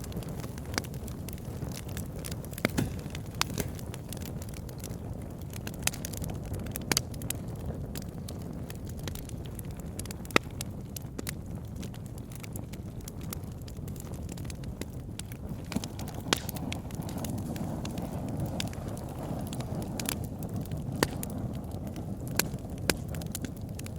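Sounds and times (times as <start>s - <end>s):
campfire flames rumbling: 0.0s - 23.9s
fire crackling and popping: 0.0s - 23.9s.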